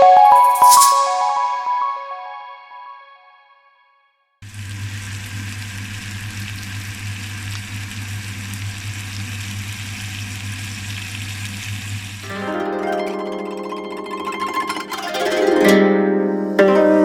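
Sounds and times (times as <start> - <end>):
food sizzling in a pan: 4.4 - 12.4
plucked-string music: 12.2 - 17.0.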